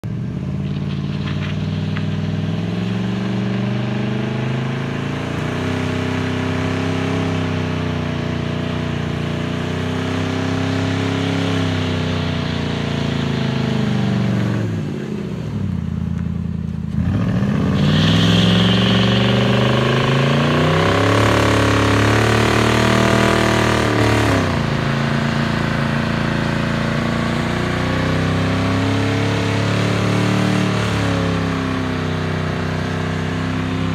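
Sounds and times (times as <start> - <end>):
car engine revving: 0.0 - 33.9
tyre screech: 17.6 - 21.2.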